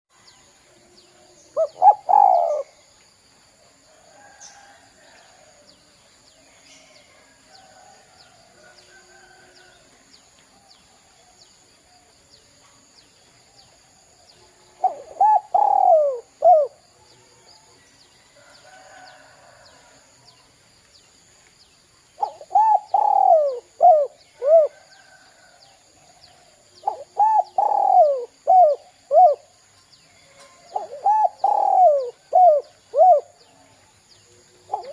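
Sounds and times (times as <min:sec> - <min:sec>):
dove cooing: 0:01.5 - 0:02.8, 0:14.7 - 0:16.8, 0:22.2 - 0:25.2, 0:26.5 - 0:29.5, 0:30.4 - 0:33.4, 0:34.6 - 0:34.9.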